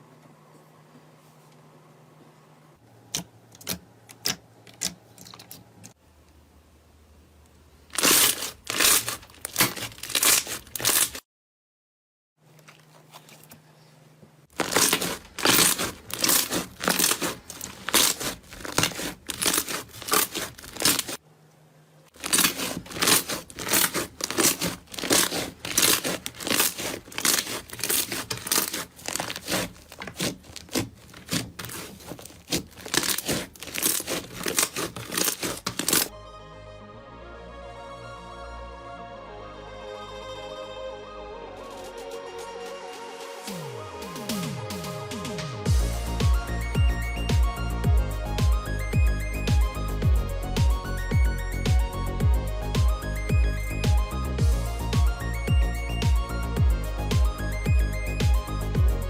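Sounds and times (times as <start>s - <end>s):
slime crackling and popping: 7.9s - 11.2s, 14.5s - 21.2s, 22.1s - 36.1s.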